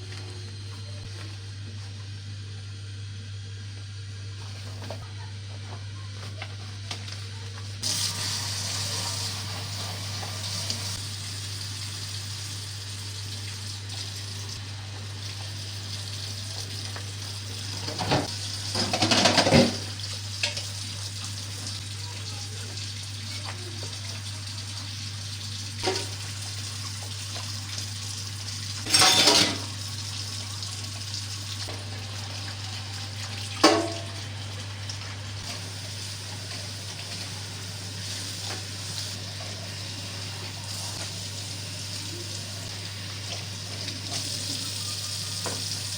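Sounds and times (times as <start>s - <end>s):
water running in sink: 0.0s - 45.9s
dishes and pans clattering: 17.8s - 20.6s, 28.9s - 29.8s, 33.6s - 34.1s.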